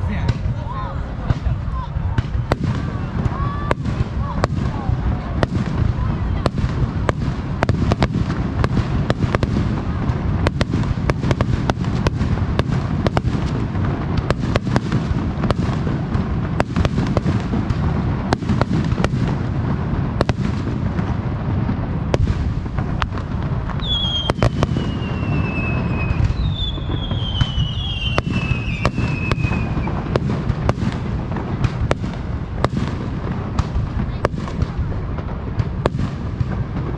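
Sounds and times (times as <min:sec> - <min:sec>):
continuous low rumble: 0:00.0 - 0:36.9
descending whistling fireworks: 0:00.0 - 0:36.9
firework shells bursting: 0:22.1 - 0:36.9.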